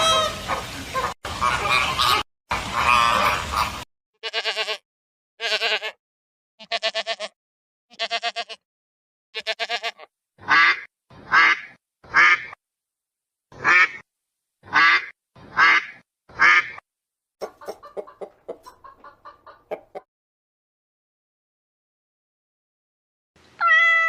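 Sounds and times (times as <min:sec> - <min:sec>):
sheep bleating: 0:04.2 - 0:04.8, 0:05.4 - 0:06.0, 0:06.6 - 0:08.6, 0:09.4 - 0:10.6.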